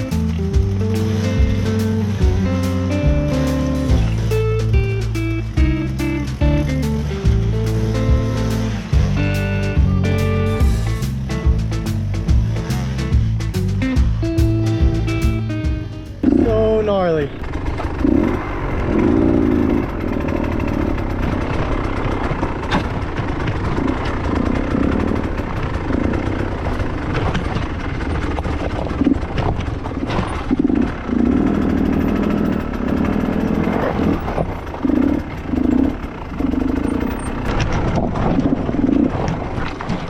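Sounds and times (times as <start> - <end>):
dirt bike engine revving: 0.0 - 39.6
bike knocking against rock: 26.4 - 30.8.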